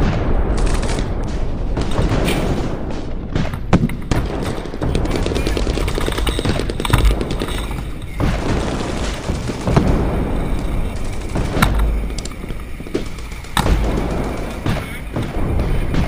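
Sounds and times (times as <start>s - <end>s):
airsoft guns popping: 3.3s - 16.0s.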